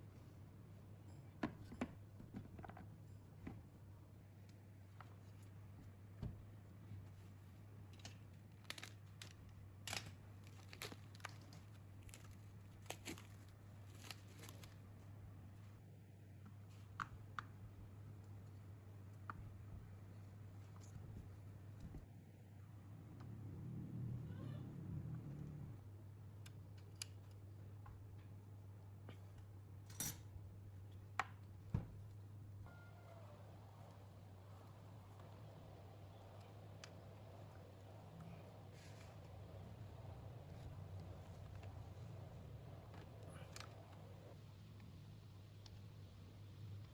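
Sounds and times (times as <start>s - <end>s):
steady low hum: 16.7s - 46.9s.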